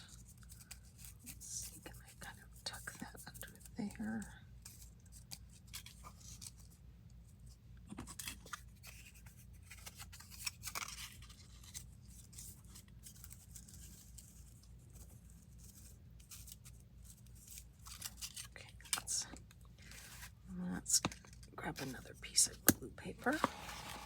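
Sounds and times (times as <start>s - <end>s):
low electrical hum: 0.0s - 24.0s
paper rustling and crinkling: 4.6s - 6.8s, 7.4s - 20.4s, 23.2s - 24.0s.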